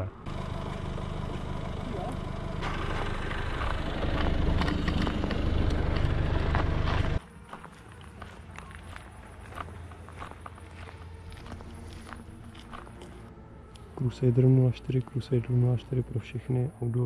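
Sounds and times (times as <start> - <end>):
car engine running: 0.0 - 7.2.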